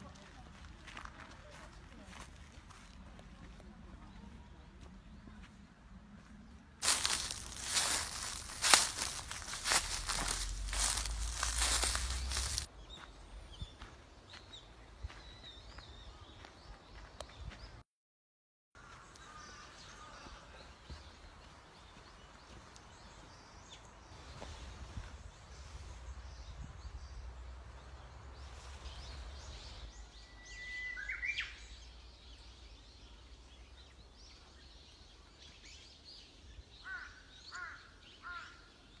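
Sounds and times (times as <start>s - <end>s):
forest birds calling: 6.8s - 17.8s, 18.8s - 39.0s.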